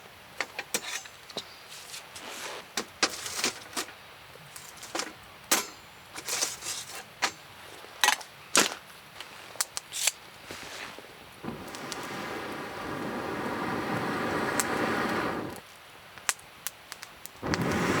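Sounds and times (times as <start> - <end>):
low hiss of fire: 0.0 - 8.0, 8.8 - 18.0
campfire crackling and popping: 9.6 - 18.0.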